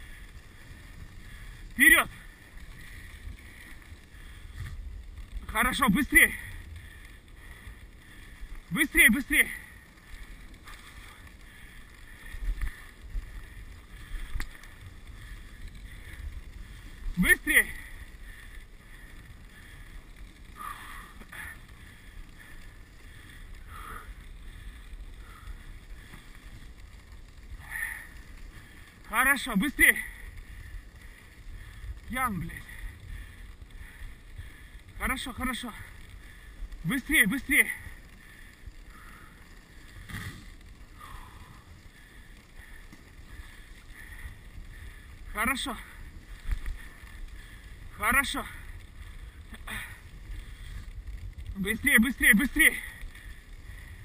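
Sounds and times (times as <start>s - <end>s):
sled runners rumbling on snow: 0.0s - 54.0s.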